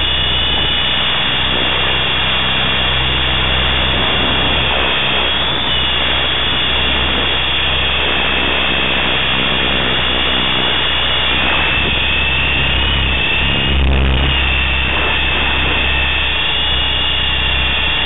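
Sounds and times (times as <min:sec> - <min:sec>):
rc helicopter motor and rotor whine: 0:00.0 - 0:18.0.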